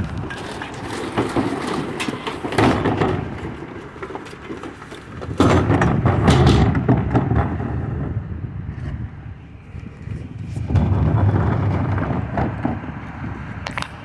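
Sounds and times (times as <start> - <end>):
knocks thuds and clatter: 0.0 - 8.9, 10.4 - 14.0
truck engine rumble: 0.0 - 14.0.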